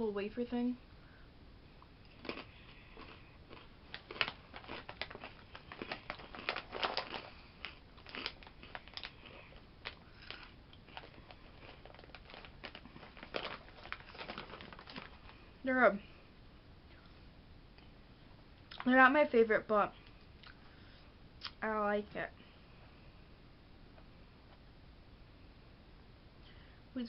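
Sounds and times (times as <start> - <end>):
cracker crunching: 1.8 - 15.6.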